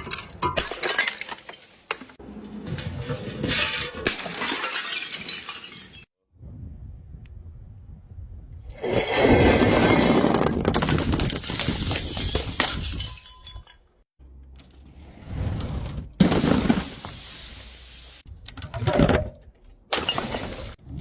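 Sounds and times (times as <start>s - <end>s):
glass bottle being crushed: 10.7s - 13.8s.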